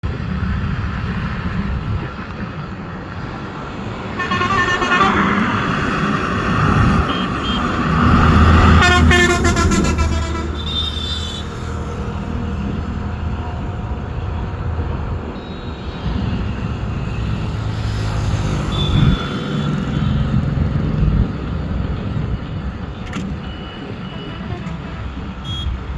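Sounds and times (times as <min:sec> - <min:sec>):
horn sounding: 0:04.0 - 0:14.5, 0:18.5 - 0:20.4, 0:23.4 - 0:25.9.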